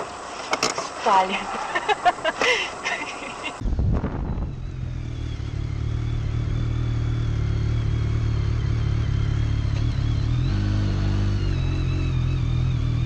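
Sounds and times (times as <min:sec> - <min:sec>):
motorcycle engine running: 0:03.8 - 0:13.0.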